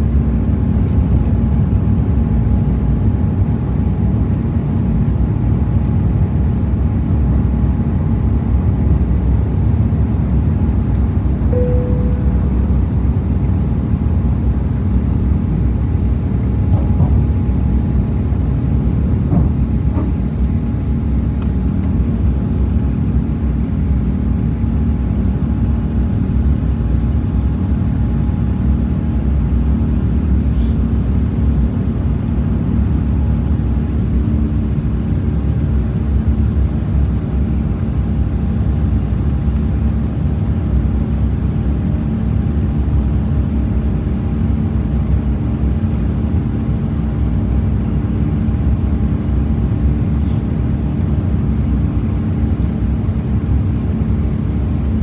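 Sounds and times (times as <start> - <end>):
airplane cabin drone: 0.0 - 55.0
steady hum tones: 11.5 - 13.9.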